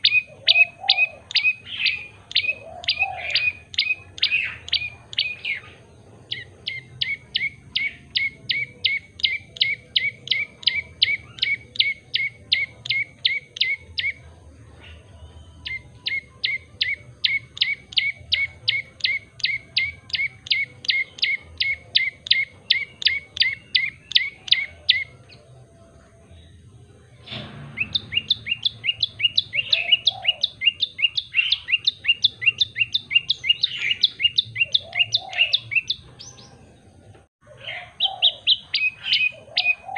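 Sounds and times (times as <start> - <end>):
tailorbird singing sharp chirps: 0.0 - 25.5, 27.2 - 36.6.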